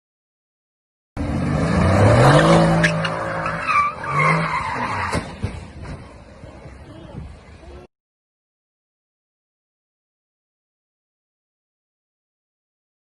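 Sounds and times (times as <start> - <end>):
car engine revving hard: 1.2 - 4.5
tyres squealing and skidding: 1.3 - 6.2.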